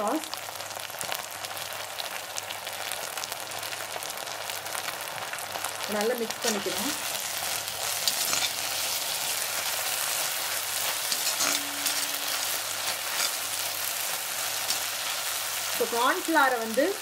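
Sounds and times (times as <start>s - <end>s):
onions sizzling in hot oil: 0.0s - 17.0s
spatula scraping a pan: 7.4s - 15.3s.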